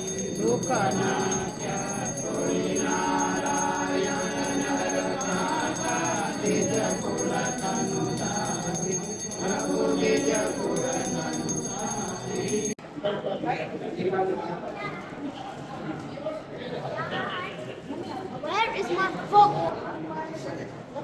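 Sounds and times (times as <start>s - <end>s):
jingling bells: 0.0s - 12.8s
voices singing: 0.0s - 12.8s.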